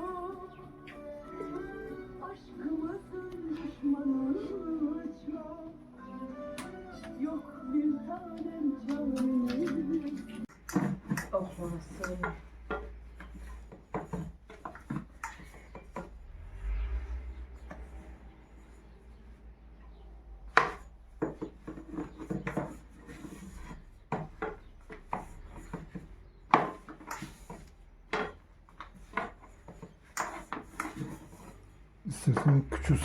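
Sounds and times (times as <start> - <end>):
rubbing and scraping: 8.9 - 33.0
utensils knocking on wood: 20.5 - 31.2.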